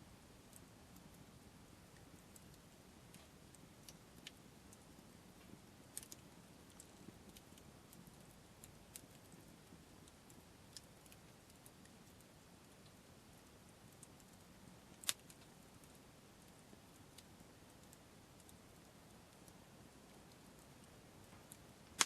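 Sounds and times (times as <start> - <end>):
wood fire crackling: 0.0 - 22.0
sharp pops of burning wood: 14.9 - 15.6, 21.2 - 22.0.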